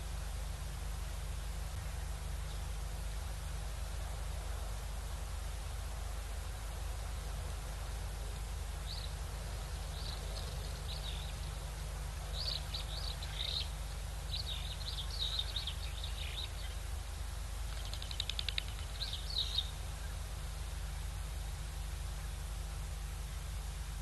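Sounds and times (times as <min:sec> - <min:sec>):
steady low hum: 0:00.0 - 0:24.0
small birds chirping: 0:08.3 - 0:17.1, 0:17.7 - 0:20.4
fast rattling bird trill: 0:08.8 - 0:17.0, 0:17.7 - 0:20.2.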